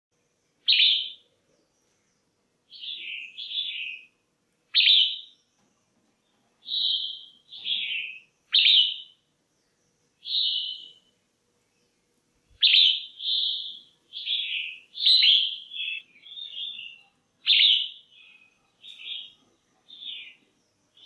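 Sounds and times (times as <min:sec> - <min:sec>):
bird calling: 0:00.6 - 0:01.3, 0:02.7 - 0:04.1, 0:04.7 - 0:05.4, 0:06.6 - 0:09.2, 0:10.2 - 0:11.0, 0:12.6 - 0:21.0.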